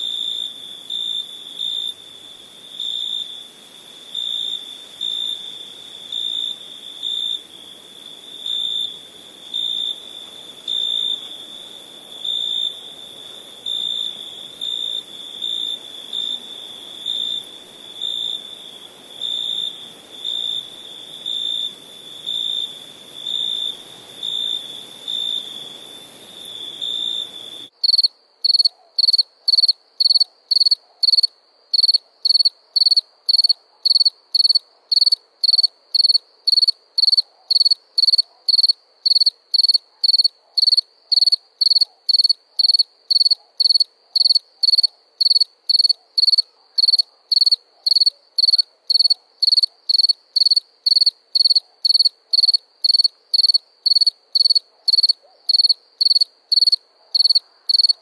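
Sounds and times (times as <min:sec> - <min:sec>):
fast insect chirping: 0:00.0 - 0:28.6
crickets chirping: 0:00.0 - 0:58.0.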